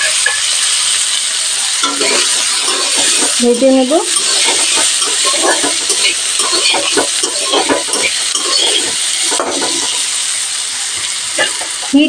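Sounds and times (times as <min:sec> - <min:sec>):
vegetables sizzling in oil: 0:00.0 - 0:12.0
metal spatula scraping pan: 0:01.7 - 0:10.1.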